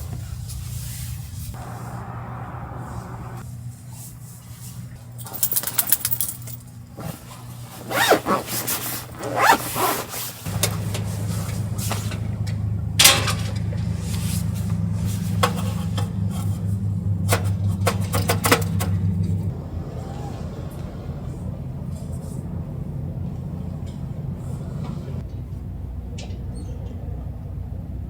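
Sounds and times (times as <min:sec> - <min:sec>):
low mechanical hum: 0:00.0 - 0:28.0
zip-like rasping: 0:07.9 - 0:10.3.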